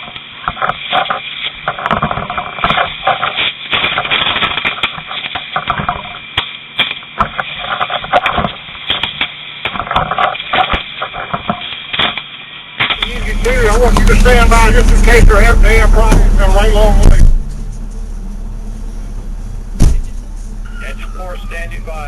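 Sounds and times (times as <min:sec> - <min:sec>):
radio static crackle: 0:00.0 - 0:22.0
garbled radio voices: 0:12.9 - 0:18.6, 0:19.9 - 0:22.0.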